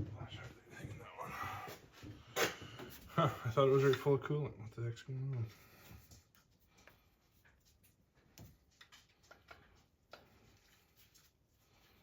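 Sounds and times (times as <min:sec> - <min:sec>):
faint clicks and light knocks: 0:05.3 - 0:11.3.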